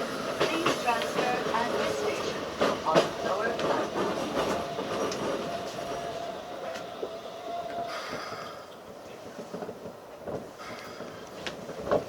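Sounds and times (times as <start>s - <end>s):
electric train whine: 0.0s - 11.5s
train wheels rumbling on rails: 0.0s - 12.0s.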